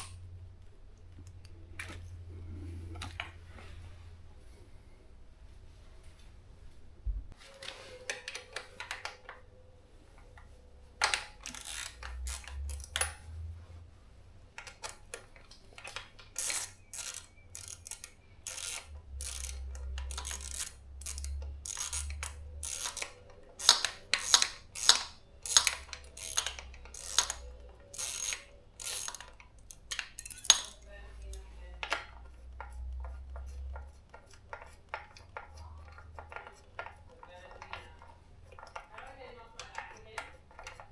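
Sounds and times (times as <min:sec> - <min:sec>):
metal tools clicking and clinking: 0:00.0 - 0:00.2, 0:11.0 - 0:13.3, 0:14.6 - 0:33.2.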